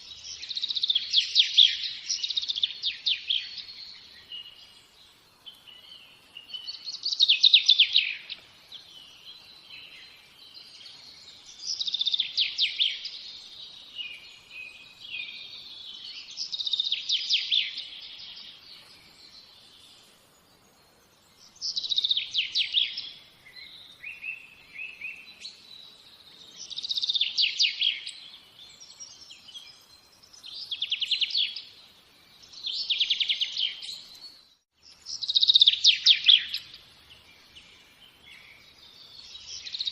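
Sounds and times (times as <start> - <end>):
soft bird twittering: 0.0 - 39.9
songbird trilling: 35.1 - 36.8.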